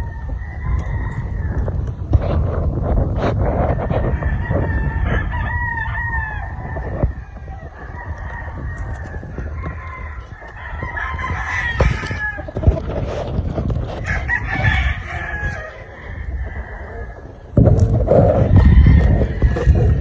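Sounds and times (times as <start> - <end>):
roosters crowing: 0.0 - 20.0.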